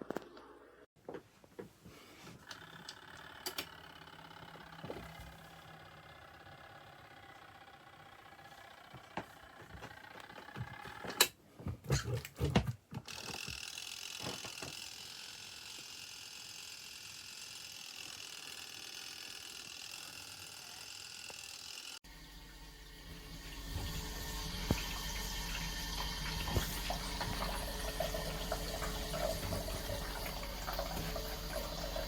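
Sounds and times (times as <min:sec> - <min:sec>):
washing machine motor hum: 0:02.3 - 0:32.0
running water: 0:22.1 - 0:32.0.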